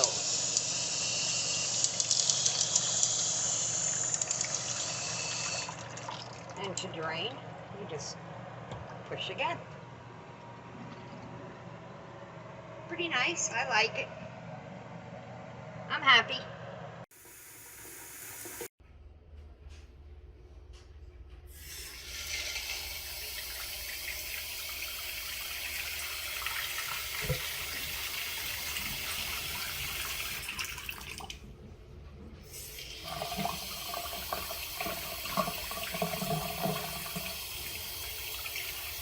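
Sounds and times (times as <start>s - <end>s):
faucet water splashing into sink: 4.0s - 6.6s, 21.6s - 31.4s, 32.7s - 39.0s.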